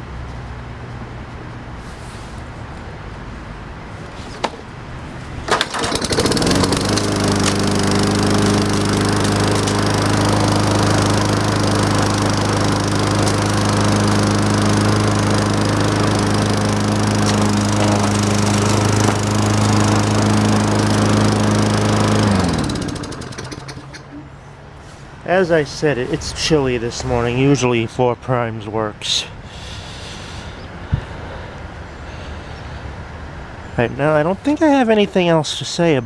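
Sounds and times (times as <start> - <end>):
lawn mower engine running: 5.4 - 24.3.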